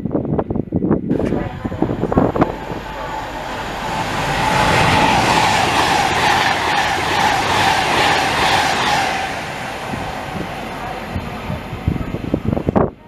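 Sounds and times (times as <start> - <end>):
train passing at speed: 1.1 - 13.0.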